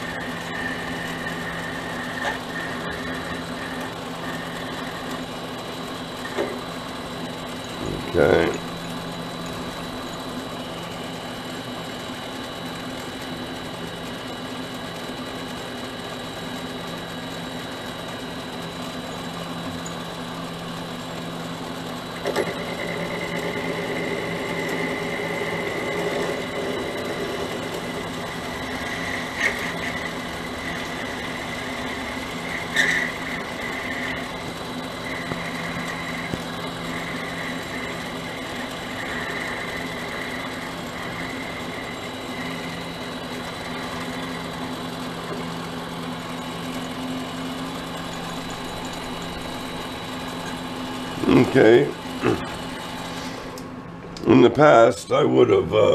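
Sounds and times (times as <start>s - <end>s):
tool cutting brass high tone: 0.0s - 5.2s
lathe motor humming with whine: 0.0s - 55.9s.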